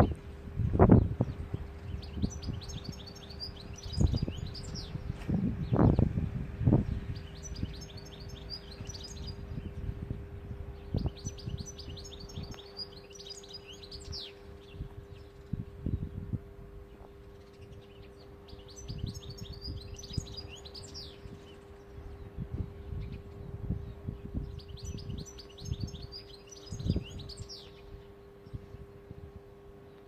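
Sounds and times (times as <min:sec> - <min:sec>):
faint steady hum: 0:00.0 - 0:30.0
goldfinch twittering song: 0:00.0 - 0:30.0.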